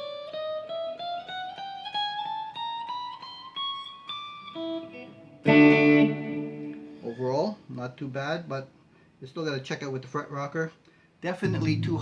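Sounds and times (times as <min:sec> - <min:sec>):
electric guitar single notes: 0:11.5 - 0:12.0
strummed guitar chord: 0:11.5 - 0:12.0.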